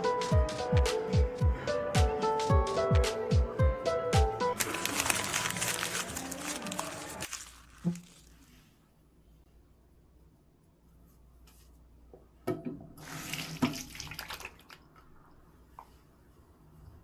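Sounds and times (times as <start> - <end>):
water running from a tap: 13.0 - 14.8.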